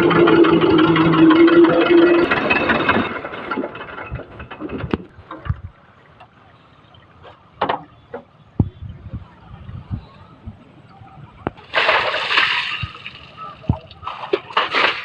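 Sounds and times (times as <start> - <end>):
engine winding down: 0.0 - 5.1
knocks and clatter: 0.0 - 5.8.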